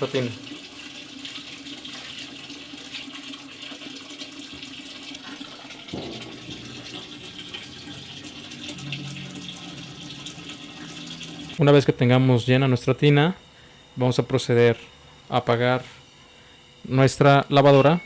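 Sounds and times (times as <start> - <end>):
water rushing into washing machine: 0.0 - 11.6
steady low hum: 5.9 - 18.0.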